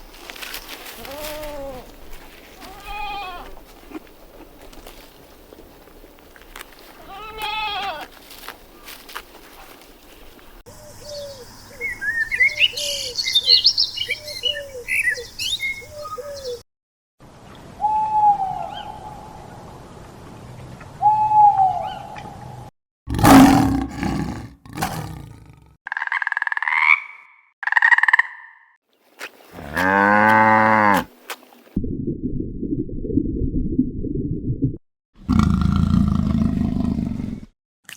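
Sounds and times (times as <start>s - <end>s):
animal calls: 23.1s - 26.1s, 35.3s - 37.4s
low rumble: 31.8s - 34.8s.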